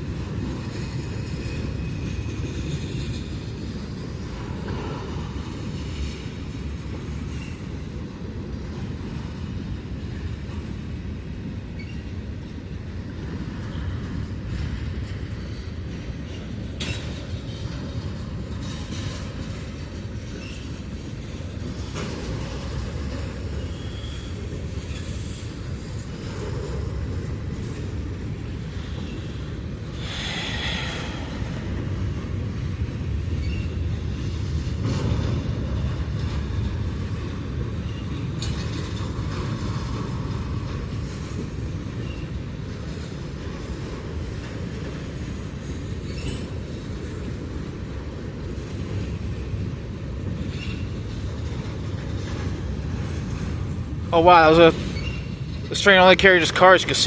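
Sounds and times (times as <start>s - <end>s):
train wheels rumbling on rails: 0.0s - 57.0s
wheels clicking over rail joints: 0.0s - 57.0s
high wheel squeals: 23.5s - 26.2s, 54.4s - 55.9s.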